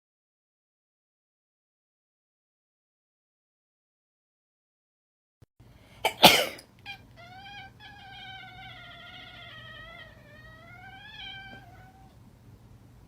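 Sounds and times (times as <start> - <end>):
cat yowling: 6.8 - 12.2.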